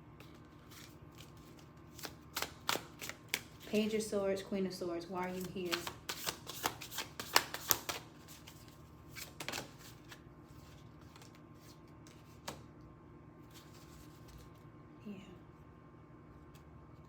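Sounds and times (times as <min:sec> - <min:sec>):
cards snapping and flicking: 0:00.2 - 0:03.7, 0:05.4 - 0:08.6, 0:09.2 - 0:10.2, 0:12.4 - 0:12.7.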